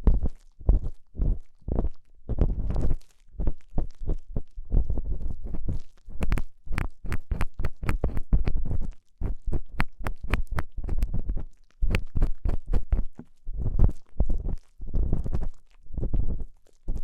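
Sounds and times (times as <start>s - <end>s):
muffled rubbing thumps: 0.0s - 17.0s
ear pick scraping microphone: 4.8s - 17.0s.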